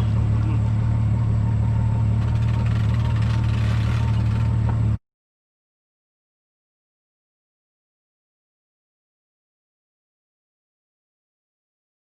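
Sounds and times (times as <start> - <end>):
outboard motor running: 0.0 - 5.0.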